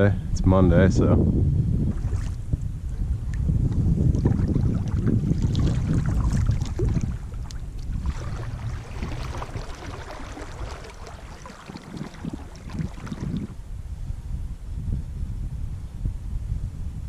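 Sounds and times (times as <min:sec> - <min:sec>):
wind buffeting microphone: 0:00.0 - 0:17.0
water lapping around canoe: 0:01.9 - 0:13.6.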